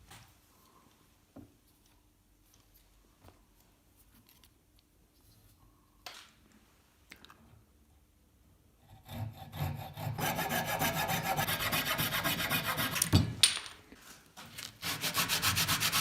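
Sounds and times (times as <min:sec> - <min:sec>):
hand tool rasping on wood: 0:09.0 - 0:13.0, 0:14.8 - 0:16.0.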